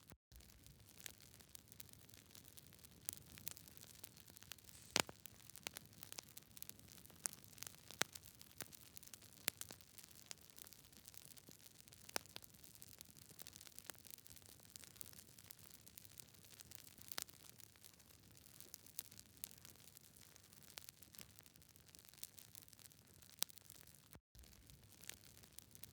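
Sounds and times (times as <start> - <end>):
campfire crackling and popping: 0.4 - 21.4, 22.0 - 25.9
faint soft hiss: 4.7 - 5.2.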